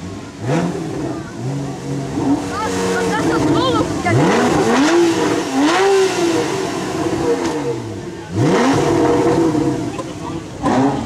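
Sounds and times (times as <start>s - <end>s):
sports car engine revving: 0.0s - 11.0s.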